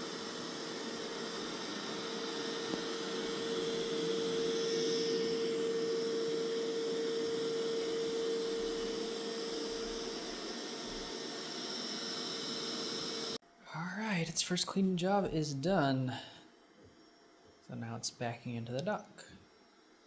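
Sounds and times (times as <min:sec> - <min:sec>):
vacuum hum: 0:00.0 - 0:13.4
vacuum suction fan hiss: 0:00.0 - 0:13.4.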